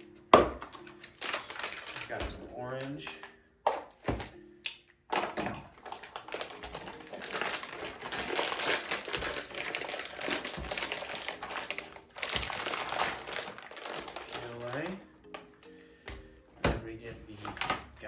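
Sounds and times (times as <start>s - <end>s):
plastic packaging crinkling: 0.6s - 3.4s, 5.1s - 15.7s.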